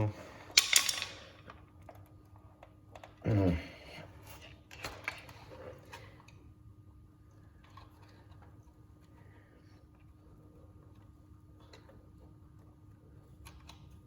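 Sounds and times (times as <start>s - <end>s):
clattering clicks of hard parts: 0.5s - 1.6s
person grunting: 3.2s - 3.8s.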